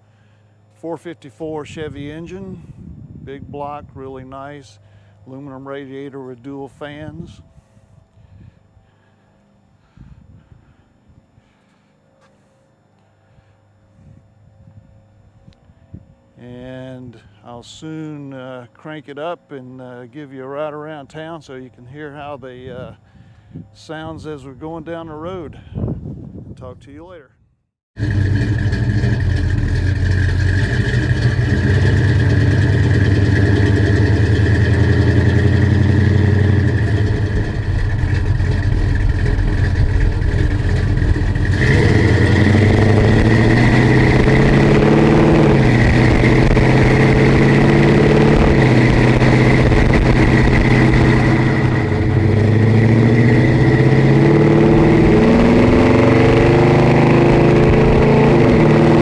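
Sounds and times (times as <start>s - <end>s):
car engine running and revving: 28.0s - 59.0s
car pulling away shifting gears: 28.0s - 59.0s.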